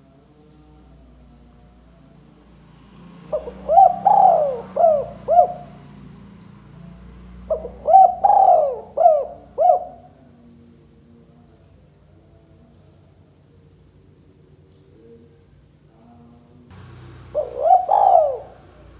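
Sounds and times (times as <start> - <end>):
dove cooing: 3.3 - 5.8, 7.5 - 10.1, 16.8 - 18.9.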